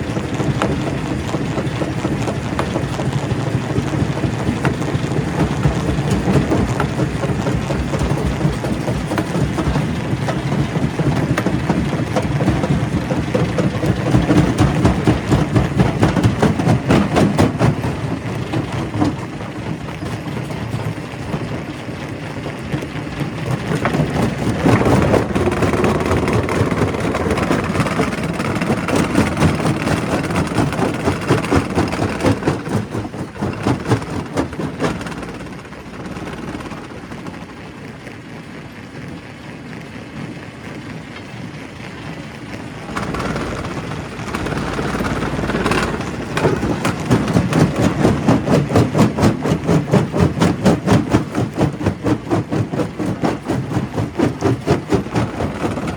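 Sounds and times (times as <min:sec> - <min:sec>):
rock crusher running: 0:00.0 - 0:37.9, 0:42.3 - 0:55.9
fast even pulsing: 0:42.8 - 0:55.9.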